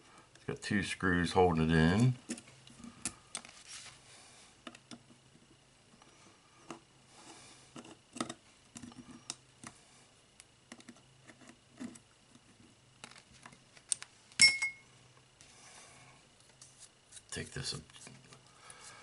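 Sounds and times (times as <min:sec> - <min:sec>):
sharp metallic clink: 0:14.4 - 0:14.8.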